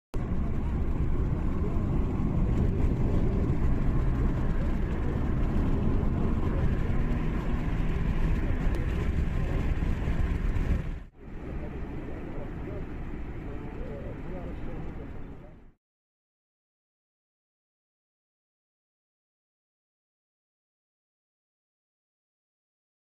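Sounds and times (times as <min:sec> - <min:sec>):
car rumbling along road: 0:00.2 - 0:15.7.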